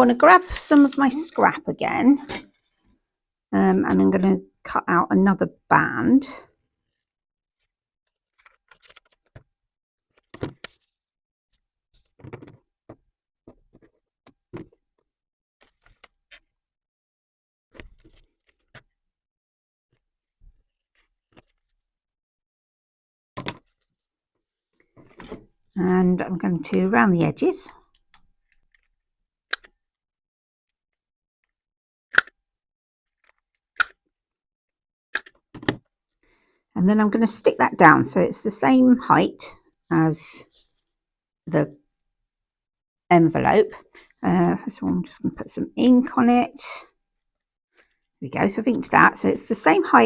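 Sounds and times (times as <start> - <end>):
paper being handled: 0.4 - 1.4, 7.6 - 9.4.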